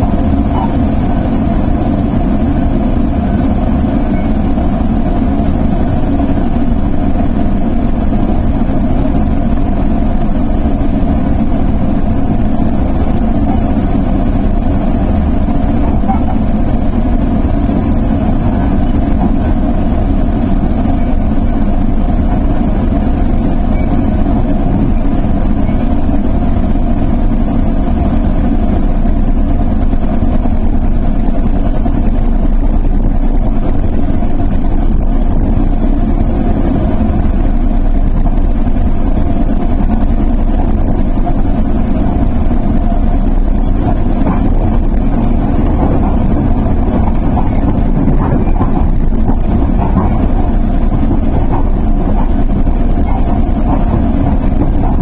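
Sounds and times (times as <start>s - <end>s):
train rumbling with hum: 0.0s - 55.0s.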